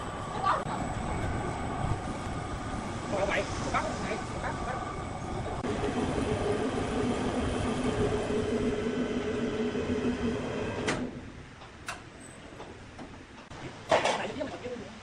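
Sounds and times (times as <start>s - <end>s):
sawmill machinery humming and grinding: 0.0s - 11.4s.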